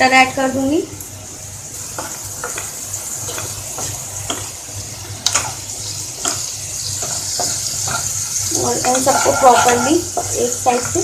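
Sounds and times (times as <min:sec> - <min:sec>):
masala sizzling in a pan: 0:00.0 - 0:11.0
spoon scraping a pan: 0:01.9 - 0:04.6, 0:05.2 - 0:11.0.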